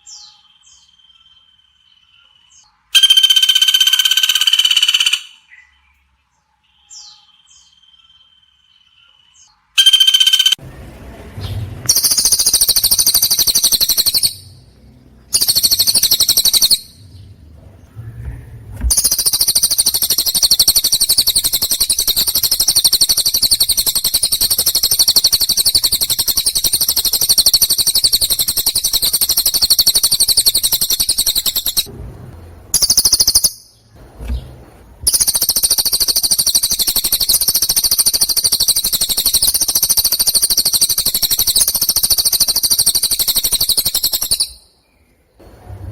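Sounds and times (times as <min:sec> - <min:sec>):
songbird trilling: 0:02.5 - 0:05.7, 0:09.8 - 0:10.6, 0:11.9 - 0:14.6, 0:15.3 - 0:17.1, 0:18.9 - 0:31.9, 0:32.7 - 0:33.8, 0:35.1 - 0:44.7.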